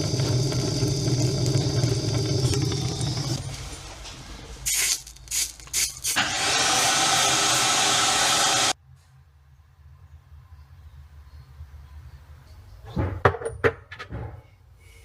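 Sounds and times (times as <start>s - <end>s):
gas torch hissing: 0.0s - 4.0s, 4.6s - 8.8s.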